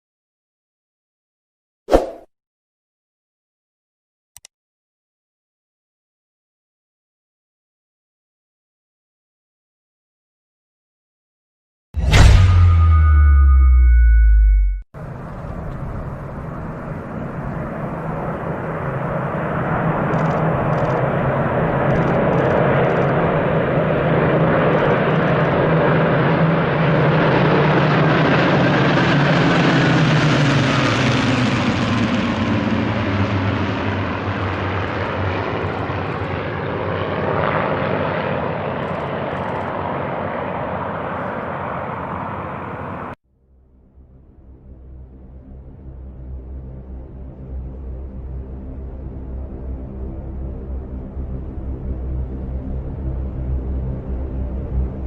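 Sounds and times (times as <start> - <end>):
aircraft engine flying over: 15.0 - 43.2, 43.8 - 55.0.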